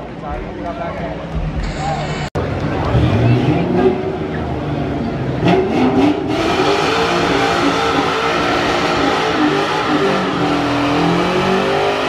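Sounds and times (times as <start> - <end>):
car engine revving hard: 2.9 - 12.0.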